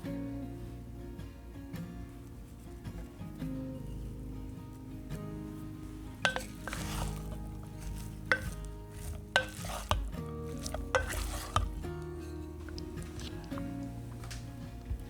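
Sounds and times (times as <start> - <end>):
light sizzle: 0.0 - 15.0
soft background music: 0.0 - 15.0
utensil stirring food in a pan: 5.4 - 15.0
utensil knocking against pan: 6.2 - 11.8.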